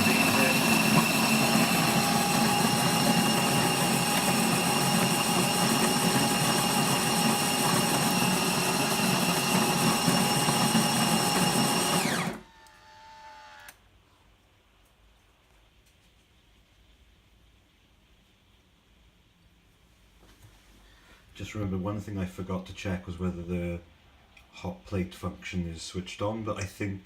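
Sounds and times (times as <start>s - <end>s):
coffee grinder motor whining: 0.0s - 13.8s.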